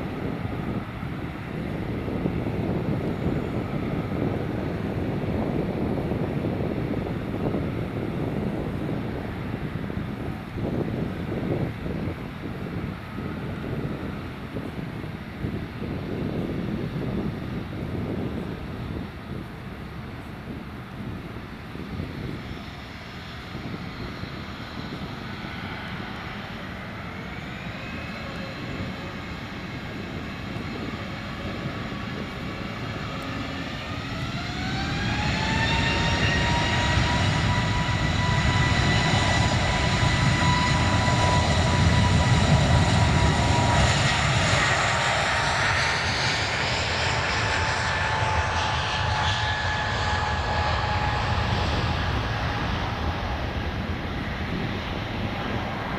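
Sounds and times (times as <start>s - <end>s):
deep rumble: 0.0s - 14.2s, 21.9s - 55.9s
jet engines spooling up: 21.8s - 55.9s.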